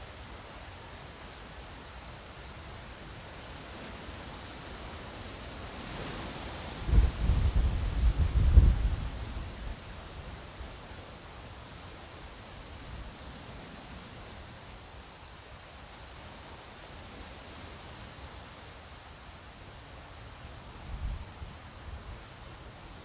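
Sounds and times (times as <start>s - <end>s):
cricket chirping: 0.0s - 23.0s
even hiss: 0.0s - 23.0s
wind on microphone: 6.6s - 9.9s.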